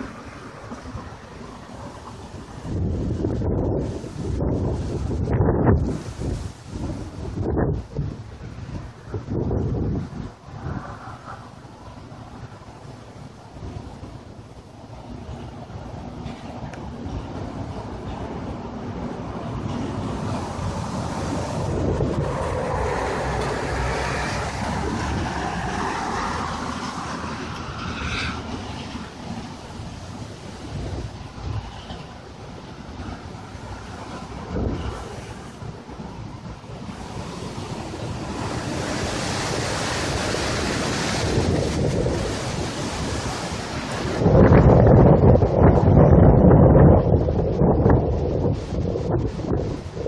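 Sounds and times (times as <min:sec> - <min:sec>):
storm surf waves: 0:00.0 - 0:50.0
wind buffeting microphone: 0:00.0 - 0:50.0
wind roaring: 0:00.0 - 0:50.0.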